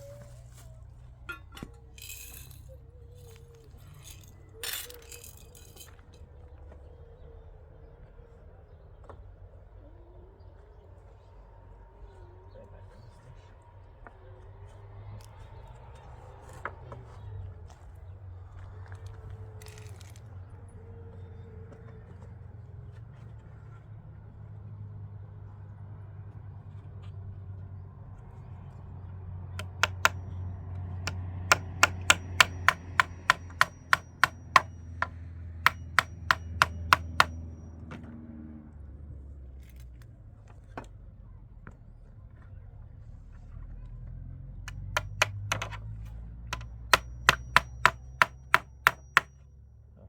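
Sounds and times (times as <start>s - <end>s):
hammer blows: 29.6s - 30.3s, 31.5s - 37.5s, 44.7s - 45.8s, 46.6s - 49.3s.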